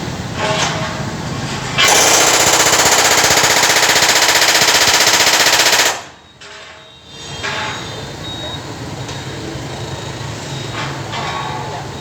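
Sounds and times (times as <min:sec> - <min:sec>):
pneumatic tool hammering: 0:01.8 - 0:06.2.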